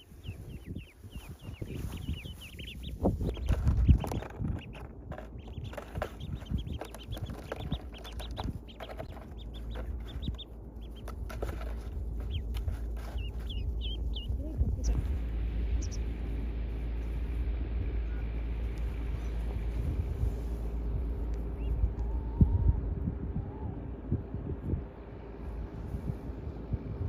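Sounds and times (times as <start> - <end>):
duckling peeping: 0.0 - 16.4, 20.6 - 22.7
low thumps and rustling: 0.0 - 22.0.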